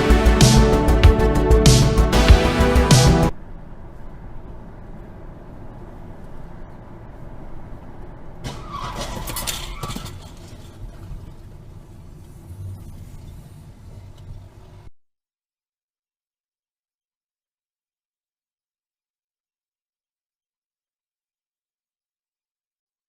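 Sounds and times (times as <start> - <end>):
car road noise: 2.1 - 14.9.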